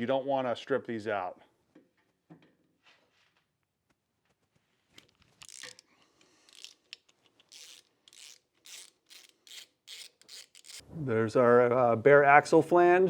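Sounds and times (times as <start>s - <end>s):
hand ratchet clicking: 5.4s - 5.9s, 6.5s - 10.8s.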